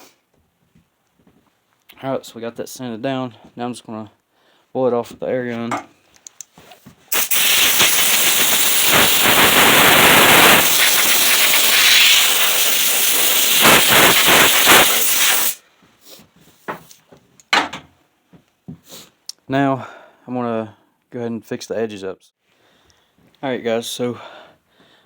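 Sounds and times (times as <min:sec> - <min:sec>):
air blow gun hissing: 0:07.1 - 0:15.6.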